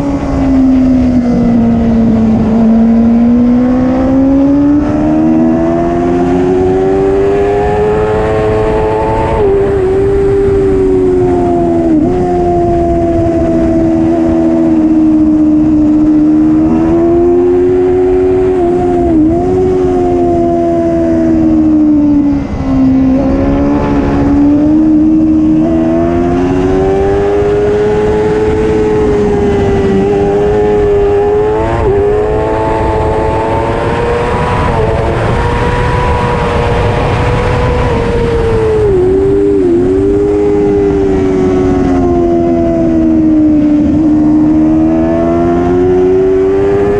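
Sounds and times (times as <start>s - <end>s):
superbike engine at high revs: 0.0s - 46.9s.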